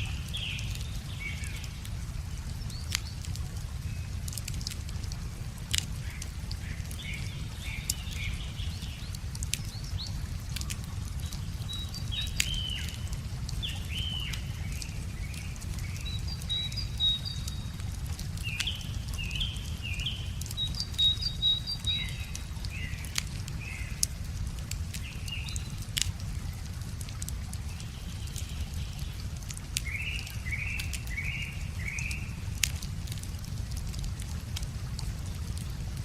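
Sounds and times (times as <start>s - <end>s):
bonfire crackling and popping: 0.0s - 36.0s
songbirds chirping and whistling: 6.1s - 24.1s, 27.7s - 32.5s.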